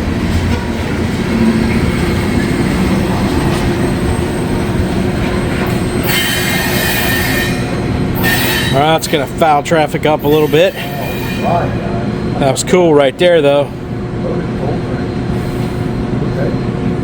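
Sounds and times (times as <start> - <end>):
freight train wheels rumbling: 0.0 - 17.0
train wheel squeal: 1.3 - 9.3, 10.2 - 12.4.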